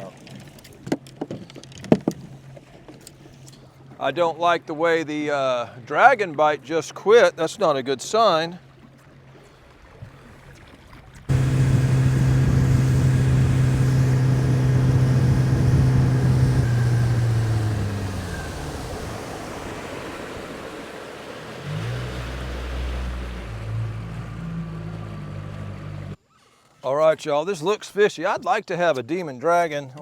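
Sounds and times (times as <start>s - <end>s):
low rumble: 11.3s - 20.1s
outboard motor running: 11.3s - 26.2s.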